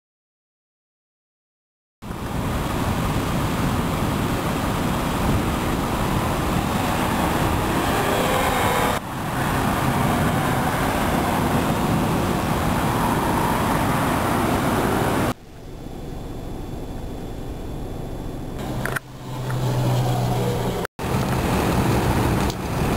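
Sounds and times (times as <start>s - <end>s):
roadway traffic noise: 2.0s - 22.9s.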